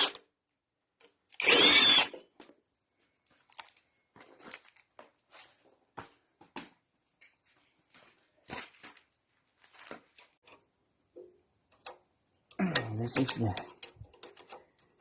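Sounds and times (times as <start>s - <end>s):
hand tools clicking and scraping: 10.2s - 15.0s.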